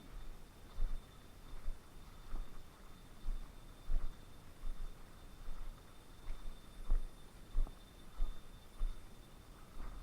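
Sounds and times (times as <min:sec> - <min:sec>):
footsteps on a trail: 0:00.0 - 0:10.0
high insect tone: 0:00.0 - 0:10.0.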